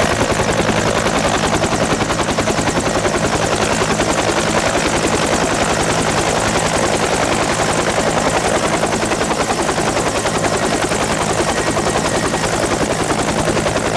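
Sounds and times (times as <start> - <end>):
aircraft engine throbbing: 0.0 - 13.9.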